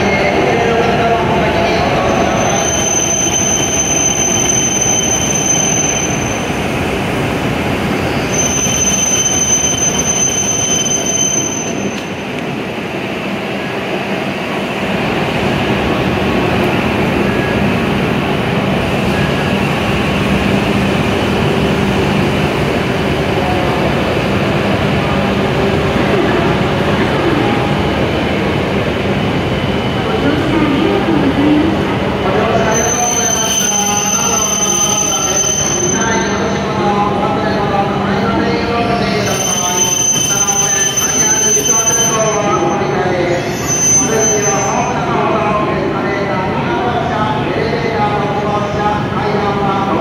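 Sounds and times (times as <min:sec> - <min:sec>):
high steady squeal: 0:38.9 - 0:45.1.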